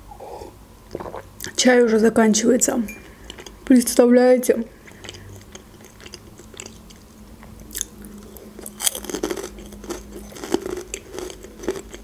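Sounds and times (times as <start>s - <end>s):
chewing with small crunches: 4.7s - 12.0s.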